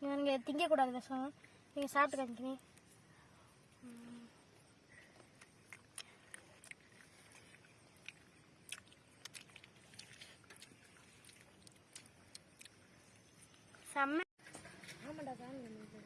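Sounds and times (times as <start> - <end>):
seeds being shelled and chewed: 4.9 - 13.7.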